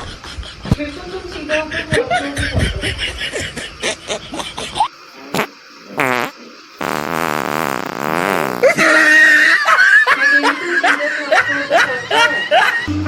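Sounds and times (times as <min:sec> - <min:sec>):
fart noises: 0:05.3 - 0:08.8
music: 0:11.4 - 0:13.0.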